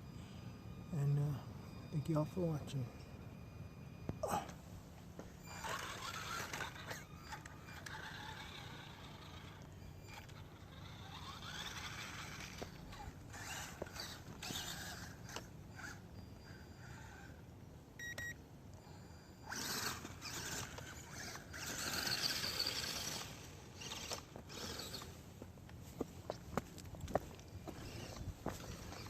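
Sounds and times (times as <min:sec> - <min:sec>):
toy truck motor whining: 0:05.2 - 0:25.2, 0:27.4 - 0:29.0.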